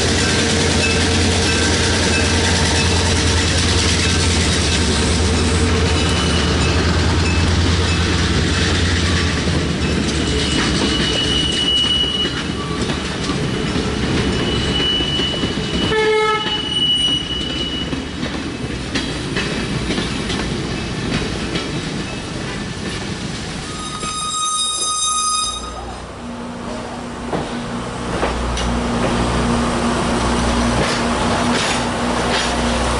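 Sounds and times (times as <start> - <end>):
train wheel squeals: 0.0 - 18.2, 23.6 - 26.0
train engine rumbling: 0.0 - 32.9
train horn toot: 14.8 - 17.8, 23.7 - 26.0.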